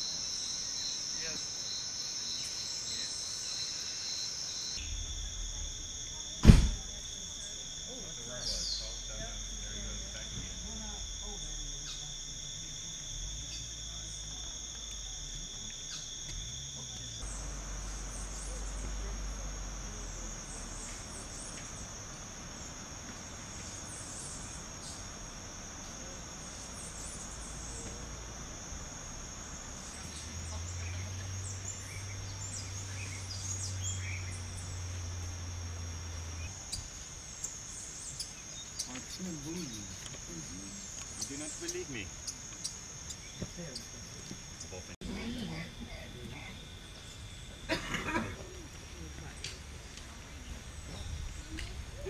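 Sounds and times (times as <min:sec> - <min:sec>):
insects trilling: 0:00.0 - 0:52.0
bird chirps: 0:08.3 - 0:09.2.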